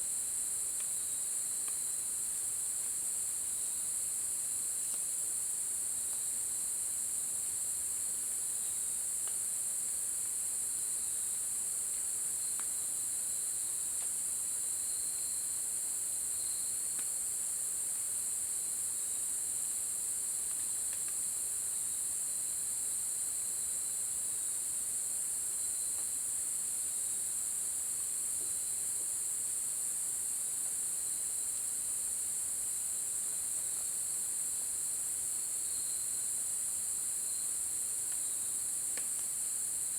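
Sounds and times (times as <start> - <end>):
low pulsing insect trill: 14.4 - 16.9, 33.9 - 38.8
faint ticks: 20.5 - 21.2, 38.9 - 39.3
high-pitched insect chorus: 27.8 - 39.9.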